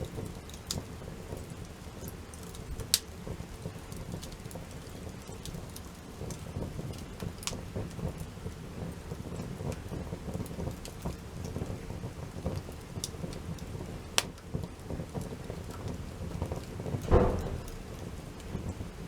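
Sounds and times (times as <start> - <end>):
campfire rumble: 0.0 - 19.0
fire crackles and pops: 0.0 - 19.0.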